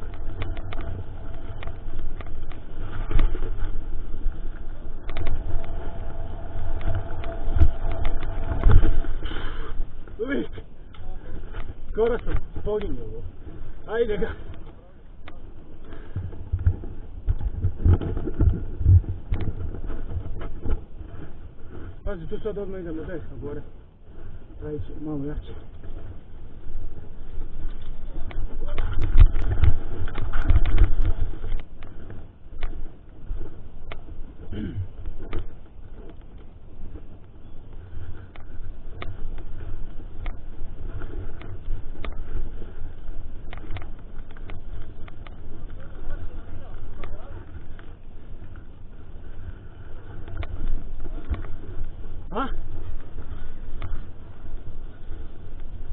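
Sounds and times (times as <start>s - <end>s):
sharp clicks and rattles: 0.0s - 21.0s, 25.1s - 34.1s, 38.0s - 52.1s
bike rumbling over rough trail: 0.0s - 55.9s.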